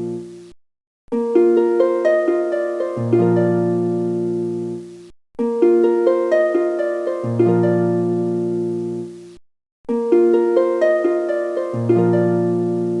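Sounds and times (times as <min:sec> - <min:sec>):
plucked harp-like melody: 0:01.1 - 0:09.2, 0:09.9 - 0:13.0.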